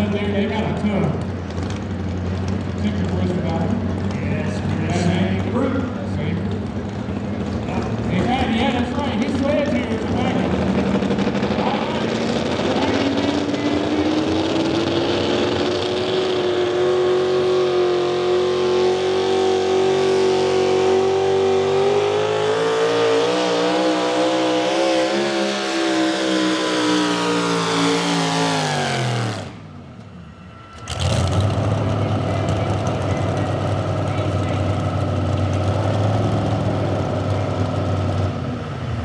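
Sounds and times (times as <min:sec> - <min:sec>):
truck engine revving under load: 0:10.0 - 0:39.0.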